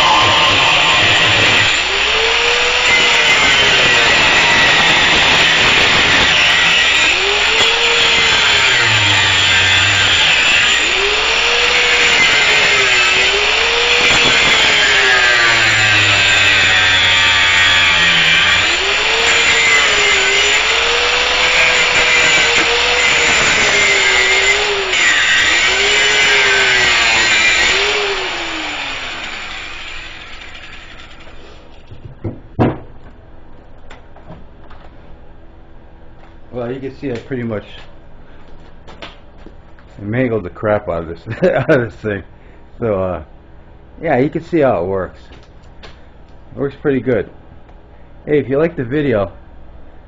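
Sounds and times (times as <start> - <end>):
angle grinder grinding metal: 0.0 - 31.9.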